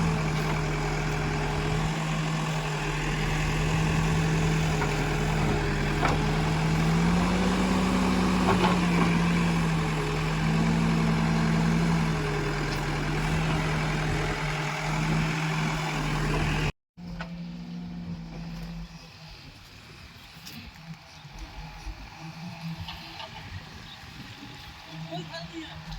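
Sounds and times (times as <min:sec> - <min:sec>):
heavy diesel engine running: 0:00.0 - 0:19.4.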